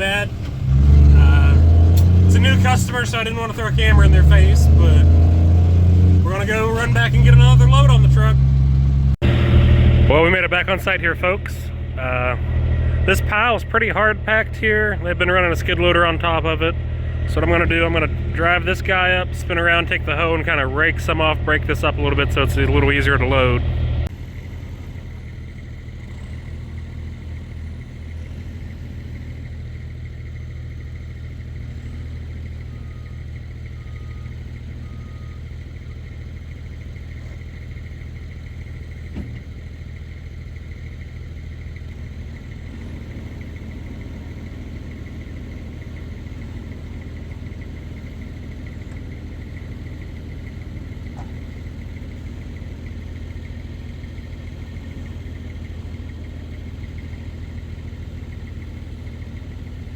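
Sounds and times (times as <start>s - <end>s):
backhoe diesel engine running: 0.0s - 59.9s.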